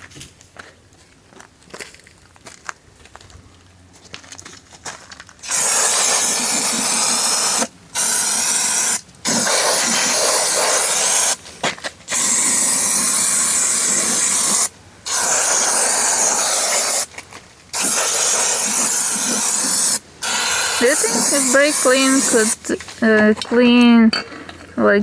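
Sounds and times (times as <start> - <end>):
aerosol spray bursts: 5.4 - 11.4, 12.1 - 17.1, 17.7 - 23.2.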